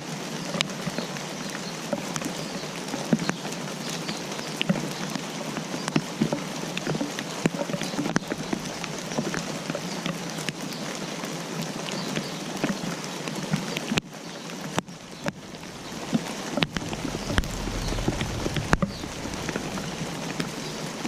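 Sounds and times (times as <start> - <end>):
raindrops ticking on surfaces: 0.1 - 21.0
rain falling: 6.5 - 21.0.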